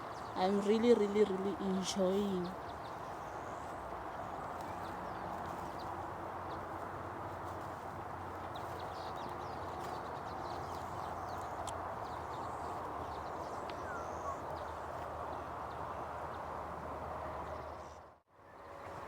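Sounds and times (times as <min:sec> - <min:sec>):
bird chirps: 0:08.5 - 0:15.8.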